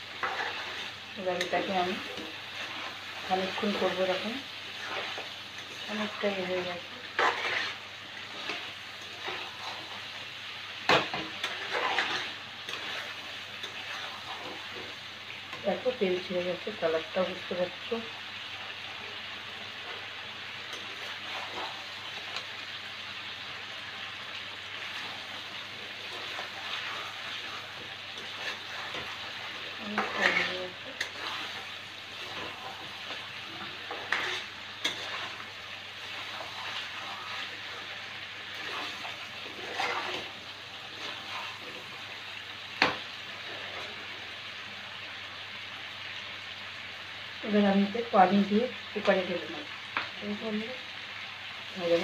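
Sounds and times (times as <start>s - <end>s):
spatula stirring and scraping: 0.0s - 16.0s, 19.6s - 22.7s, 24.7s - 44.4s
masala sizzling in oil: 0.0s - 52.0s.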